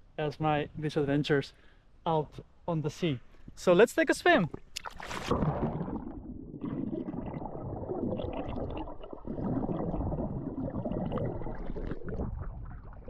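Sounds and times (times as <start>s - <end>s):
water gurgling and sloshing: 4.4s - 13.0s.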